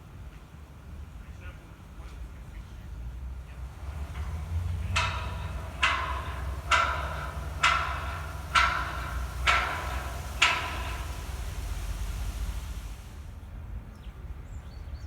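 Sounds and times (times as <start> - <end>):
steady low rumble: 3.5 - 13.4
ringing metallic strikes: 3.6 - 13.2.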